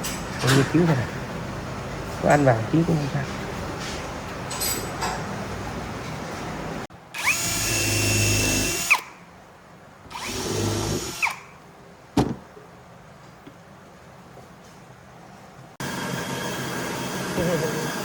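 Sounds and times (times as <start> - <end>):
power tool motor whining: 7.2 - 9.1, 10.1 - 11.4.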